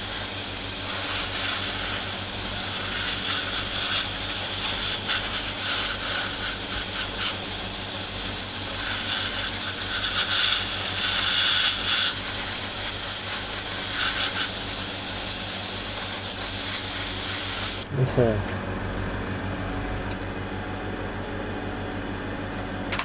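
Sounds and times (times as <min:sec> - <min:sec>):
airbrush spraying hiss: 0:00.0 - 0:17.9.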